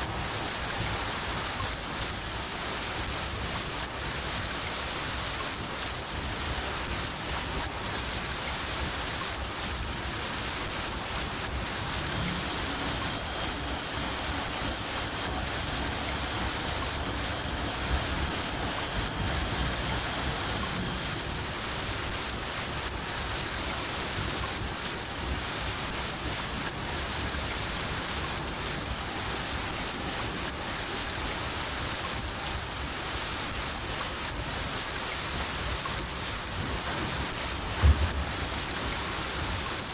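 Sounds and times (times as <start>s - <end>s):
cricket chirping: 0.0s - 39.9s
rain hissing: 0.0s - 39.9s
thunder rumbling: 36.5s - 39.9s.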